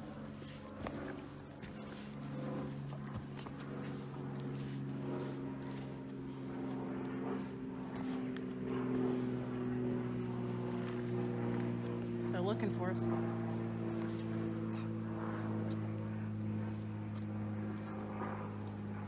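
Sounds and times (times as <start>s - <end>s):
distant engine drone: 0.0s - 19.0s
footsteps on rocks: 0.1s - 12.3s.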